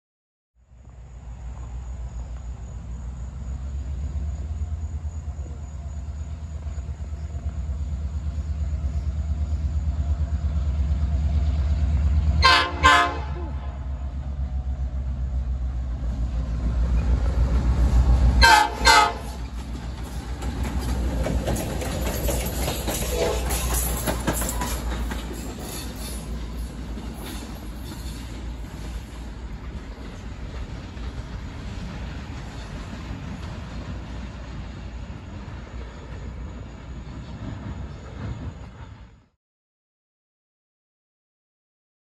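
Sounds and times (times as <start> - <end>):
diesel locomotive engine rumbling: 0.6 - 39.4
train air horn blasts: 12.4 - 14.0, 18.3 - 19.5, 23.1 - 23.8.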